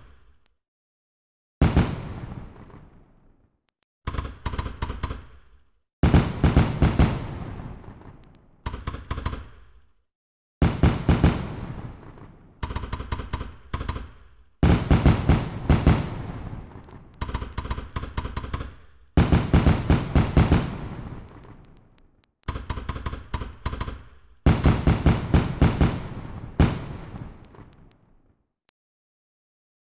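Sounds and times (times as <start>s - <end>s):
fireworks exploding: 1.6s - 3.4s, 6.0s - 8.6s, 10.6s - 12.6s, 14.6s - 17.6s, 19.2s - 22.2s, 24.4s - 28.3s.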